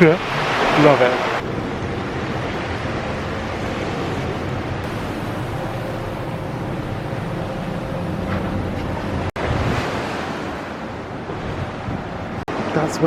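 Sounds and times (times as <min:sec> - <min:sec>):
surf washing against rocks: 0:00.0 - 0:01.4, 0:09.3 - 0:13.0
wind buffeting microphone: 0:08.1 - 0:12.6.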